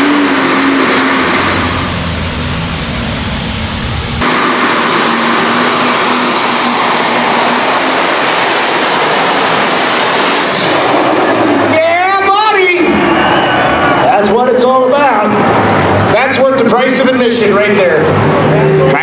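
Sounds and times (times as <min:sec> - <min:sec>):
high turbo whistle: 0:00.0 - 0:11.7, 0:12.8 - 0:14.1
tractor engine running flat out: 0:00.0 - 0:12.2.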